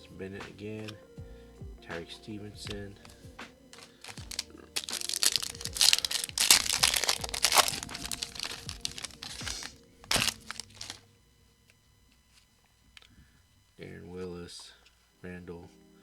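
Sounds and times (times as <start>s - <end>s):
foil wrapper tearing and crinkling: 3.8s - 11.0s
sharp crack of foil: 3.8s - 11.0s.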